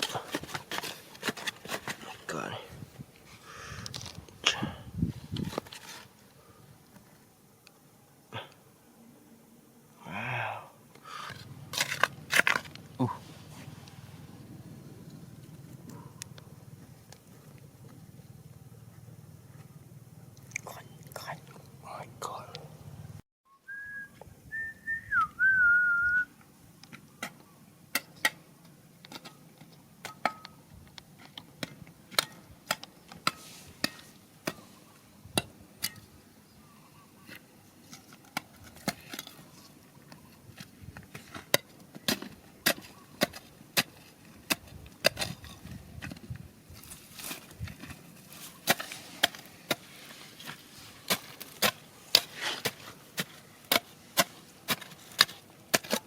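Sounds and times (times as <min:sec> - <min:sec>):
rocks and gravel knocking while digging: 0:00.0 - 0:02.3, 0:11.1 - 0:13.7, 0:29.0 - 0:34.7, 0:37.3 - 0:56.0
short whistle: 0:23.5 - 0:26.3.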